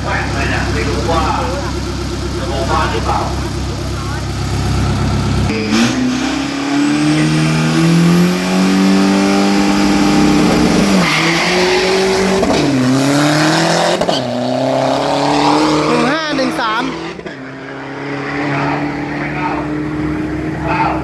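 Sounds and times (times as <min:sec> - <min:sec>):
diesel truck engine accelerating: 0:00.0 - 0:21.0.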